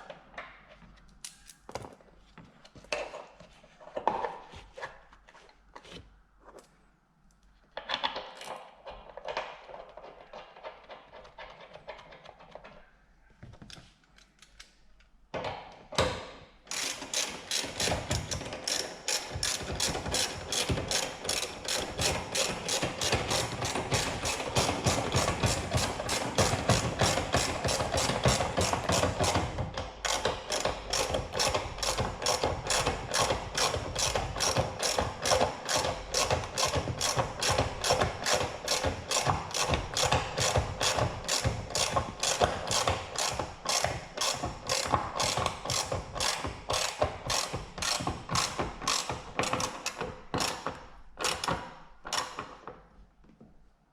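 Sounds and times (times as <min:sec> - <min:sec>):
ratchet wrench clicking: 0:16.7 - 0:25.2, 0:30.1 - 0:50.6.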